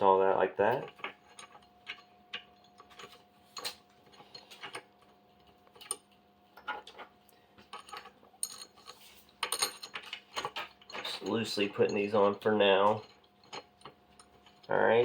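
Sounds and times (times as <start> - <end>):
faint steady hum: 0.0 - 15.0
small metal clicks and clinks: 0.7 - 5.1, 7.6 - 15.0.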